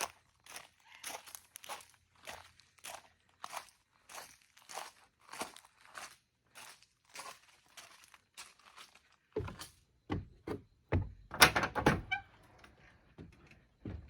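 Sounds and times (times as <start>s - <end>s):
crunching footsteps: 0.0s - 10.4s
thuds and knocks: 9.4s - 12.0s, 13.2s - 14.0s.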